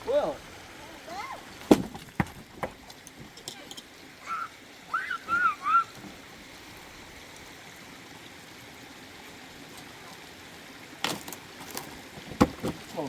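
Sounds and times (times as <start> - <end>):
rushing water: 0.0 - 13.0
high chirps: 4.2 - 6.0.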